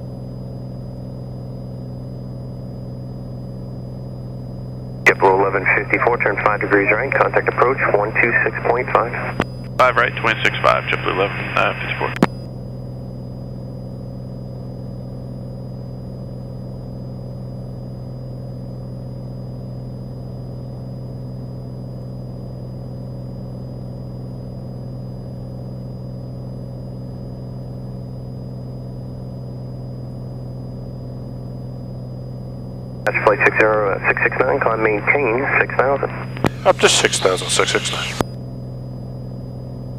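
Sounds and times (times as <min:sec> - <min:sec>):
airplane engine and propeller drone: 0:00.0 - 0:39.9
faint high whine: 0:05.1 - 0:12.5, 0:24.7 - 0:38.4.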